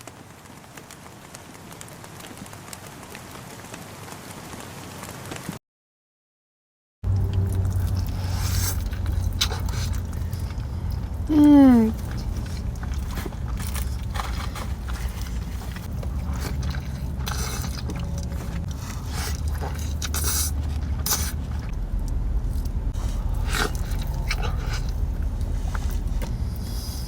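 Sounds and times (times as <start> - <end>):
steady low hum: 7.1 - 27.0
person chewing and crunching: 7.2 - 21.8, 22.5 - 27.0.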